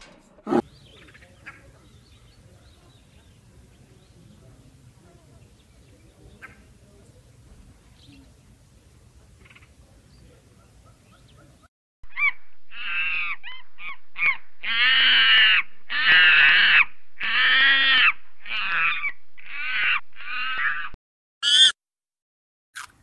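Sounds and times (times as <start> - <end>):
monkeys calling: 21.4 - 21.8.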